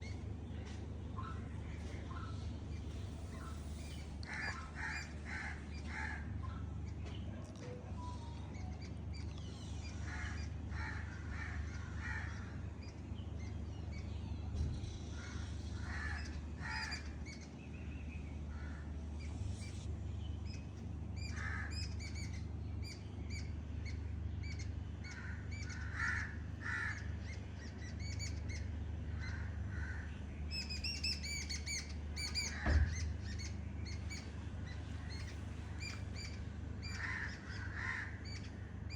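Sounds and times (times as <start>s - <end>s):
birds calling: 0.0s - 38.9s
steady low rumble: 0.0s - 38.9s
high bird chirping: 30.4s - 37.6s.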